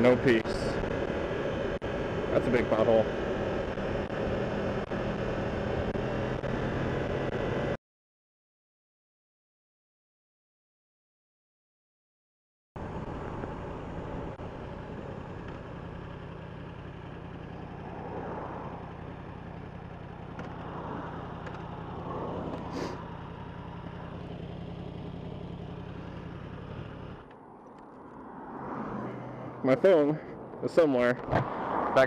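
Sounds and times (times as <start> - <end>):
motorcycle engine running: 0.0 - 7.8, 12.8 - 27.4
passing traffic: 0.0 - 7.8, 12.8 - 32.0.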